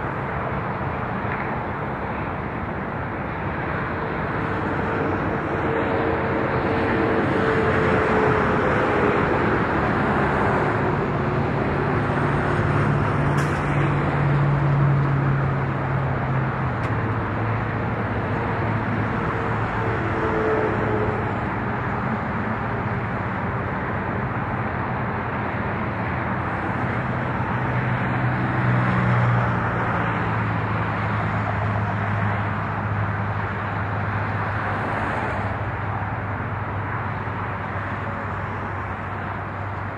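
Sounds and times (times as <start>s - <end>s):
freight train wheels rumbling on rail: 0.0s - 39.9s
low drone: 0.0s - 39.9s.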